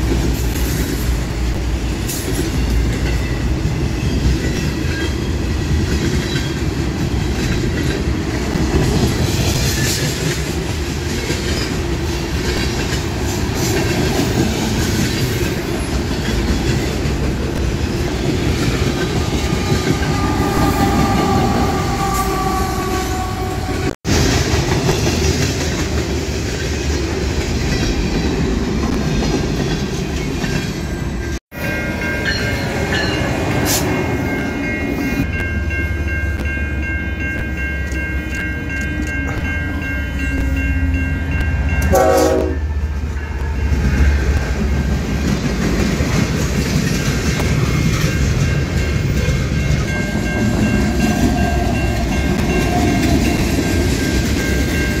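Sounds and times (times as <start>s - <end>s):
trains rumbling and clattering past: 0.0s - 55.0s
train horn: 19.6s - 24.0s, 41.8s - 43.5s.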